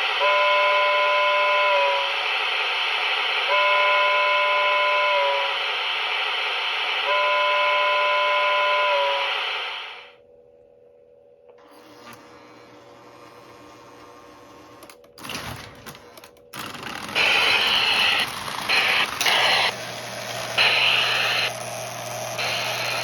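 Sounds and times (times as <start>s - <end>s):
synthesized steam whistle blasts: 0.1s - 10.2s, 20.6s - 21.6s.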